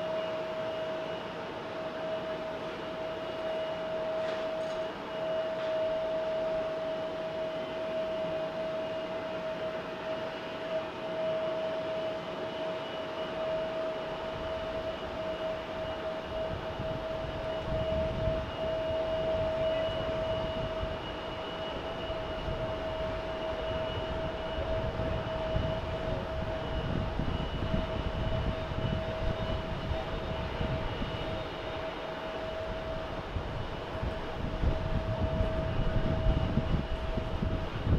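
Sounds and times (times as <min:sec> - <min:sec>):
jet engines whining: 0:00.0 - 0:37.9.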